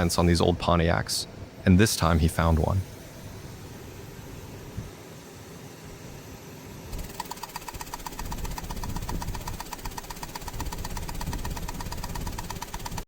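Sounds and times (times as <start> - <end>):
rapid mechanical ticking: 6.9 - 13.0.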